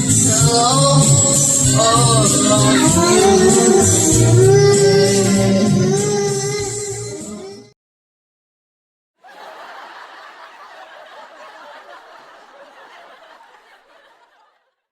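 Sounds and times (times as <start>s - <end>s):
backing music: 0.0s - 7.6s
karaoke singing: 0.0s - 7.7s
people laughing: 2.0s - 4.1s, 9.2s - 14.8s.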